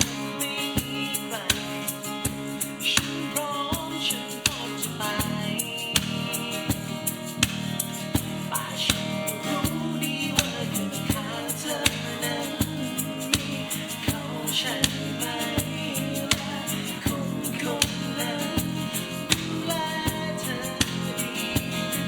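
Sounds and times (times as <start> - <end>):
steady drum beat: 0.8 - 22.0
person singing: 8.5 - 22.0.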